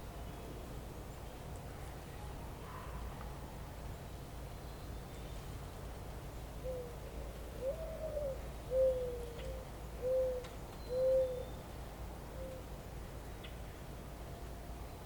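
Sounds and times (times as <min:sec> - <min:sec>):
bird cooing: 0:06.6 - 0:11.6, 0:12.4 - 0:12.7.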